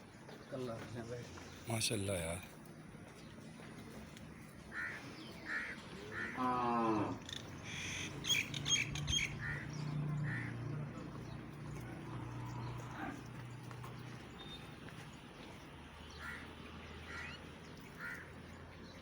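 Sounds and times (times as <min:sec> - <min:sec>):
small birds chirping: 0:00.0 - 0:19.0
crows cawing: 0:04.7 - 0:08.1, 0:09.2 - 0:10.7, 0:16.1 - 0:18.3.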